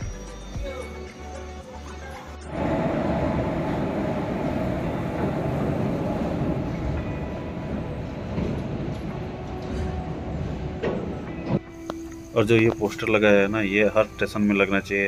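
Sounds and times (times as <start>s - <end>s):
train wheels rumbling: 2.5s - 13.3s.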